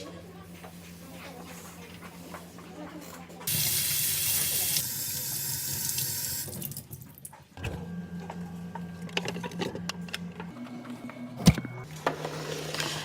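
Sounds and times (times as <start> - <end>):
tap water running: 3.5 - 7.3.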